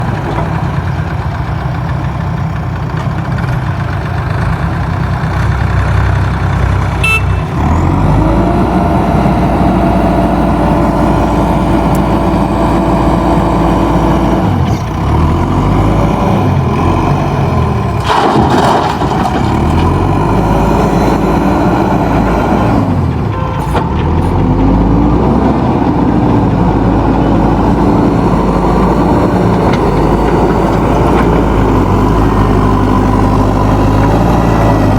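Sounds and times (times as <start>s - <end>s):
backhoe diesel engine under load: 0.0s - 34.9s.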